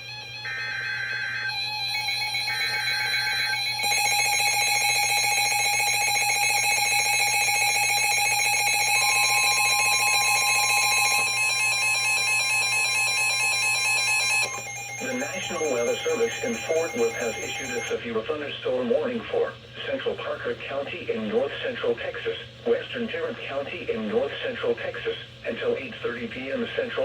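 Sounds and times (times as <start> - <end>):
screeching digital header: 0.0 - 17.9
rapidly pulsing electronic alarm: 0.0 - 18.0
steady warning tone: 0.0 - 18.0.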